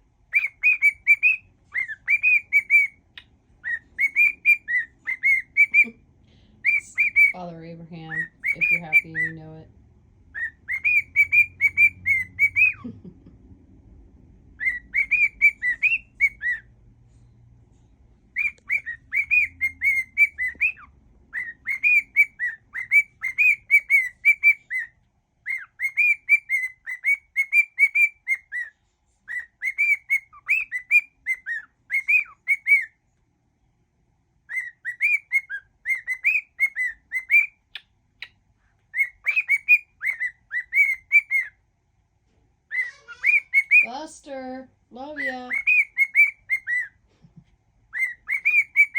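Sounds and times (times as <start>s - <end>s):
cockatiel whistling: 0.3s - 6.0s, 6.6s - 7.4s, 8.1s - 9.4s, 10.3s - 12.9s, 14.6s - 16.7s, 18.3s - 33.0s, 34.5s - 41.6s, 42.7s - 43.9s, 45.2s - 48.9s.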